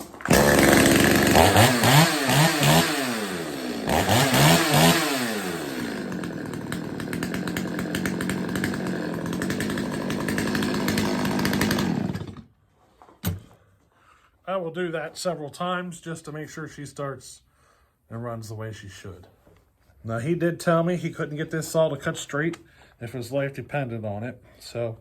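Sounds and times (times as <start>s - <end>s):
chainsaw revving and idling: 0.0s - 12.5s.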